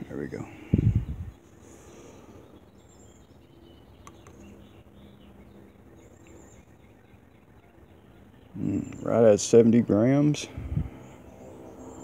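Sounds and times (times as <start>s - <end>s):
faint bird chirps: 0.5s - 9.4s
light click: 4.0s - 4.4s.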